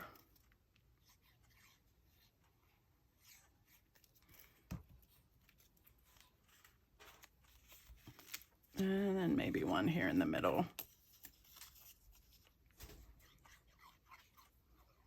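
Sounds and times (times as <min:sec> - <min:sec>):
paper rustling: 0:03.2 - 0:09.0, 0:10.7 - 0:15.0.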